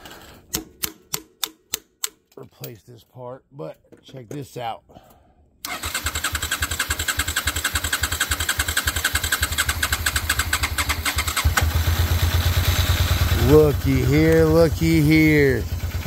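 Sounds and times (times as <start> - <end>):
motorcycle engine cranking: 5.6 - 16.0
motorcycle engine idling: 6.1 - 16.0.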